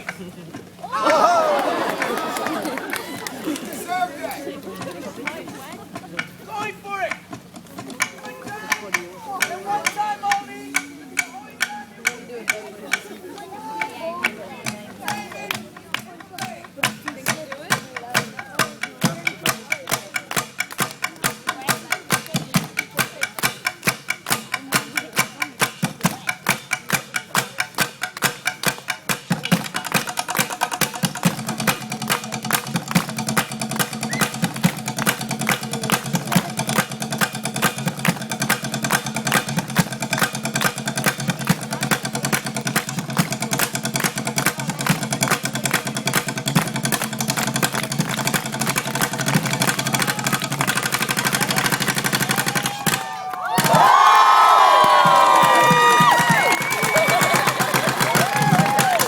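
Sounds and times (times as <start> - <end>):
rhythmic audience clapping: 0.0 - 8.1, 14.1 - 59.0
applause and cheering: 0.8 - 4.4, 46.9 - 59.0.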